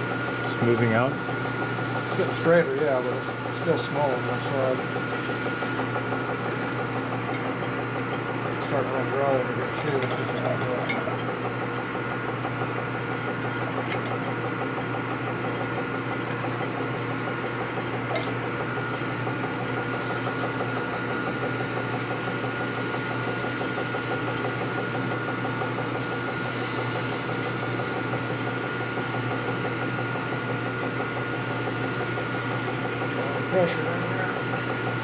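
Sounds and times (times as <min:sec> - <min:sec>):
honing machine grinding: 0:00.0 - 0:14.3, 0:31.8 - 0:35.0.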